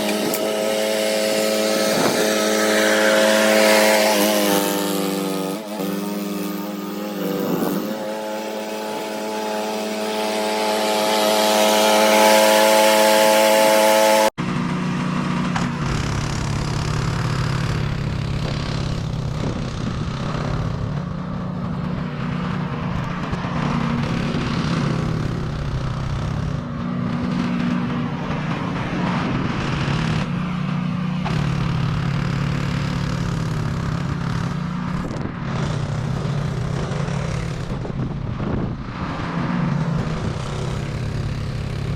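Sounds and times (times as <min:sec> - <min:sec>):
loud pitched engine note: 0:00.0 - 0:21.4
snowblower engine running: 0:00.0 - 0:38.0, 0:39.7 - 0:41.9.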